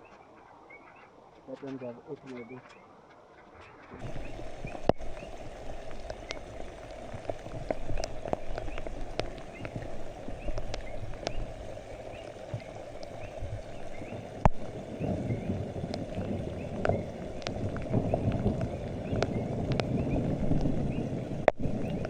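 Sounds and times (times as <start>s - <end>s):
raindrops hitting close by: 0.0s - 22.0s
rain hissing: 3.8s - 22.0s.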